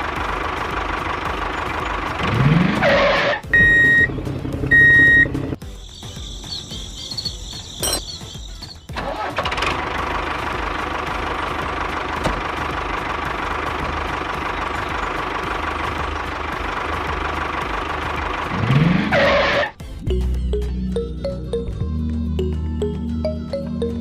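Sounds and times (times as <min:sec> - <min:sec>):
light music with mallet percussion: 0:05.6 - 0:08.9, 0:19.8 - 0:24.0.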